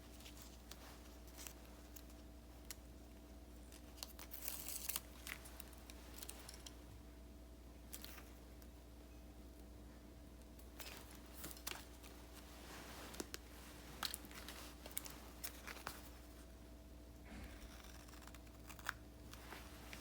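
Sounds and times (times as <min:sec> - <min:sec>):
paper crinkling: 0:00.0 - 0:06.9, 0:10.6 - 0:16.5, 0:17.4 - 0:20.0.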